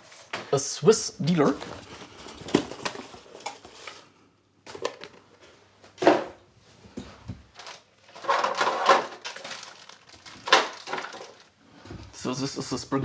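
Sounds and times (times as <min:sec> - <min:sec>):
rustling and scraping: 0:00.0 - 0:00.6, 0:01.3 - 0:05.6, 0:06.6 - 0:12.1.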